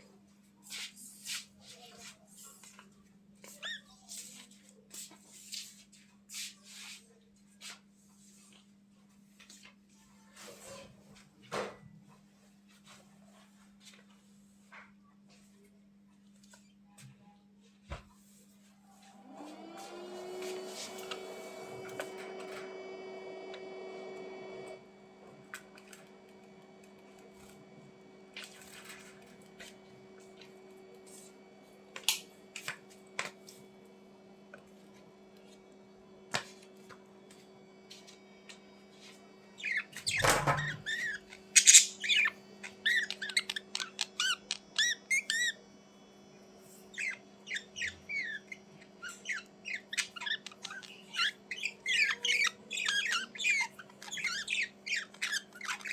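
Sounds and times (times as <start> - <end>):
budgerigars chirping: 39.6 - 45.5, 46.9 - 55.9.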